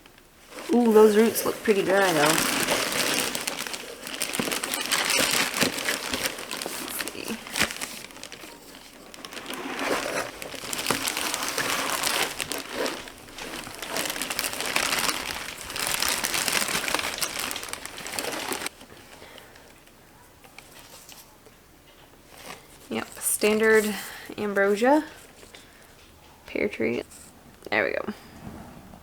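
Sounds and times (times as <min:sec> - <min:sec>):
packing material crinkling: 0:00.4 - 0:19.8, 0:22.3 - 0:25.6.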